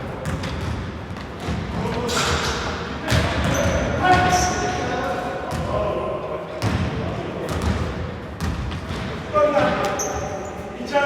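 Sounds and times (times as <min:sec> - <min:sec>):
basketball bouncing on court: 0:00.1 - 0:04.5, 0:06.6 - 0:10.3.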